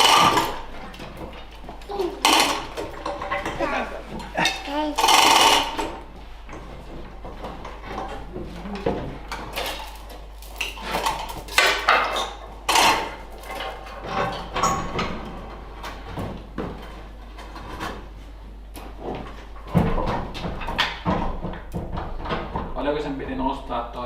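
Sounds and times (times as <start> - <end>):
metal tools clanking and scraping: 2.2 - 6.7.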